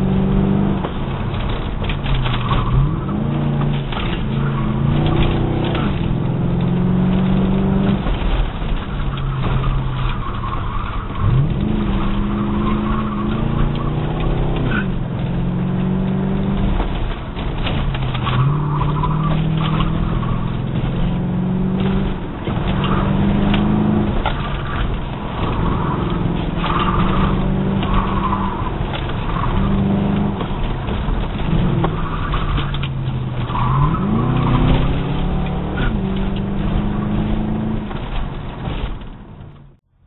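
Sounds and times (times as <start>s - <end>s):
tires squealing: 0.0s - 39.8s
car engine revving: 0.0s - 40.0s.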